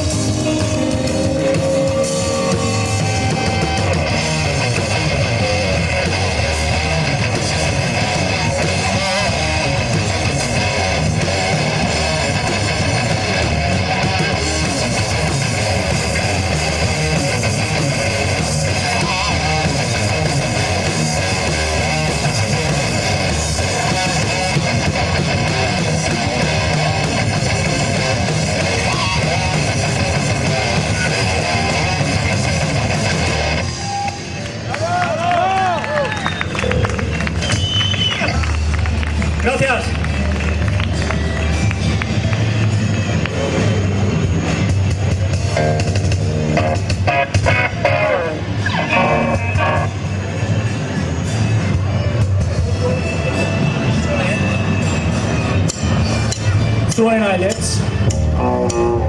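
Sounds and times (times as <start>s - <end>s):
distorted electric guitars: 0.0s - 35.1s, 36.5s - 59.0s
bass: 0.0s - 59.0s
drums: 0.0s - 59.0s.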